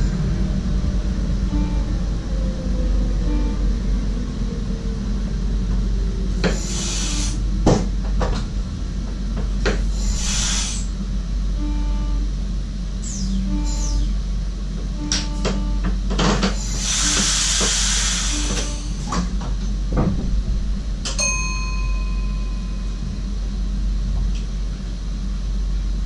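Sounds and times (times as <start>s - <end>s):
train cab low rumble: 0.0s - 26.0s
air hiss: 10.1s - 10.9s, 16.7s - 18.7s
two-note beep: 13.4s - 14.1s, 15.0s - 15.9s.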